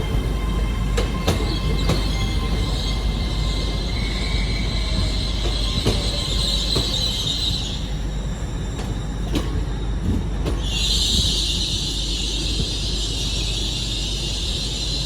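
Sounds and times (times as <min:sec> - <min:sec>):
train rumbling: 0:00.0 - 0:15.0
train wheels squealing: 0:00.0 - 0:15.0.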